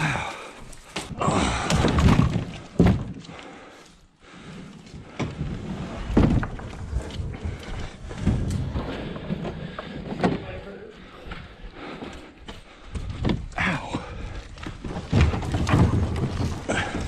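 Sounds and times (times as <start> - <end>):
kayak thunks and scraping: 4.4 - 11.6, 12.9 - 17.0.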